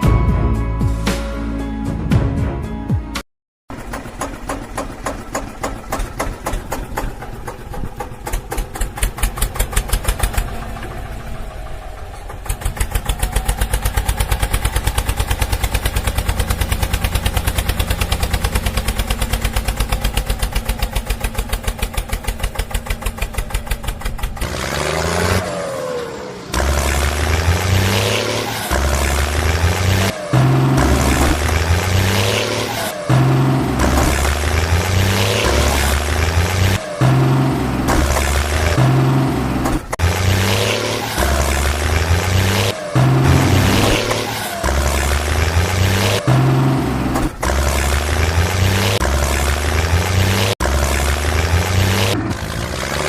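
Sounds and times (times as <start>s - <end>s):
tractor engine chugging: 3.7s - 24.7s
engine revving: 3.8s - 53.0s.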